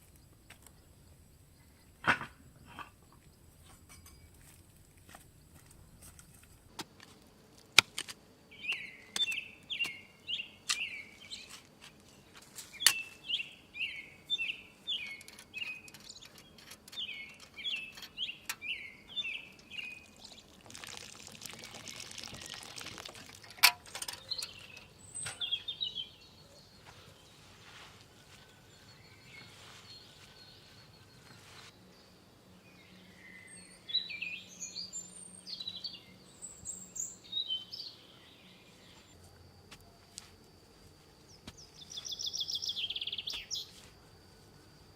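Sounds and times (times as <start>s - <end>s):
bird chirping: 8.5s - 39.2s, 41.3s - 43.8s.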